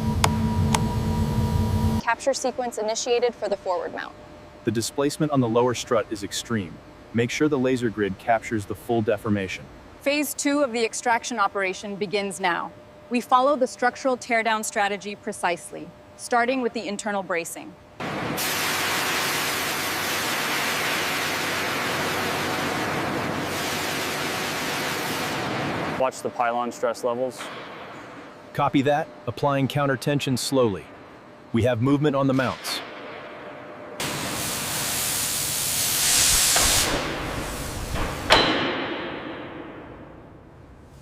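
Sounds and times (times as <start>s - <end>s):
loud steady hissing: 18.0s - 27.2s, 34.0s - 38.4s
gas venting hiss: 34.0s - 38.4s
metallic clank with ring: 38.3s - 39.8s.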